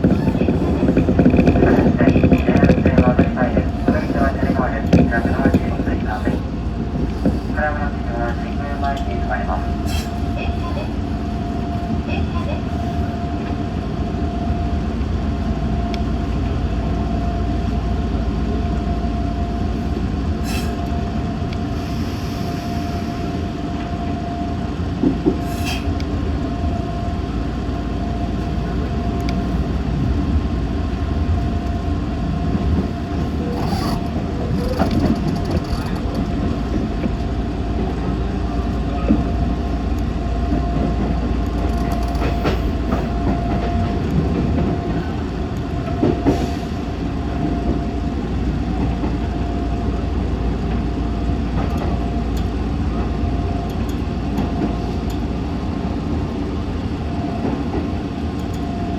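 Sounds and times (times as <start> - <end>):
wheels clacking over rail joints: 0.0 - 7.6, 30.9 - 37.3, 40.4 - 46.6
train running rumble: 0.0 - 58.9.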